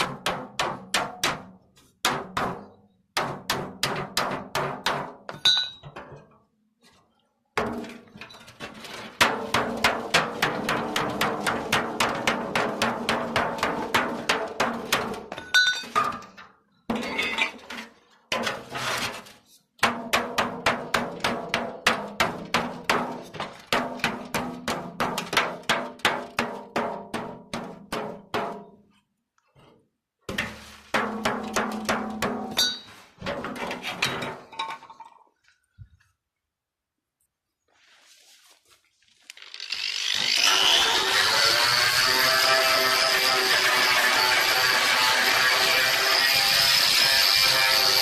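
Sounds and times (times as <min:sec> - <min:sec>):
hammer striking ringing steel: 0:05.4 - 0:05.9, 0:32.5 - 0:32.9.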